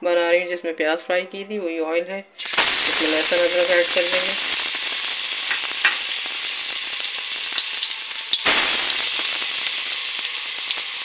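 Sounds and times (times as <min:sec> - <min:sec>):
crackles and pops: 0:02.4 - 0:11.0
paste sizzling in hot oil: 0:02.4 - 0:11.0.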